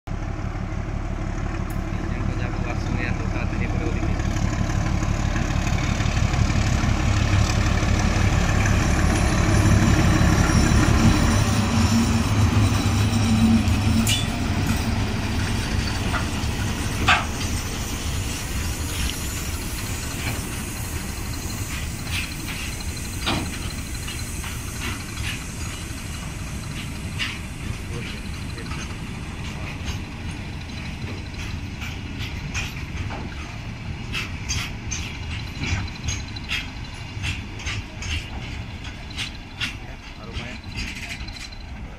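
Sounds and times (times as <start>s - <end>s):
diesel locomotive engine hum: 0.1s - 41.9s
wagons rumbling by: 0.2s - 41.9s
sharp clanks: 10.4s - 41.7s.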